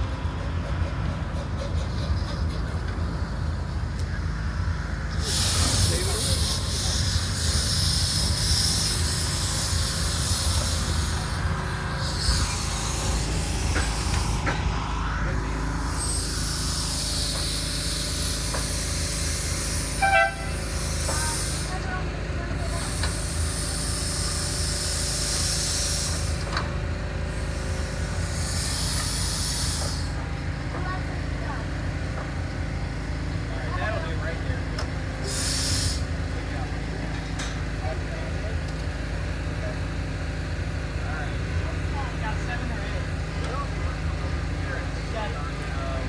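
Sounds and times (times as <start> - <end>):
steady low rumble: 0.0 - 30.6
steam hissing: 1.3 - 30.3, 35.0 - 37.1.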